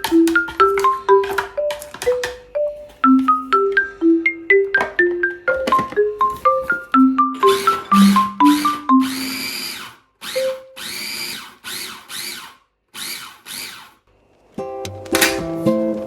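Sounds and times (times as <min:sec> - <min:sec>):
marimba music: 0:00.0 - 0:09.3
food chopper motor whining: 0:07.4 - 0:14.1
acoustic guitar music: 0:14.6 - 0:16.0.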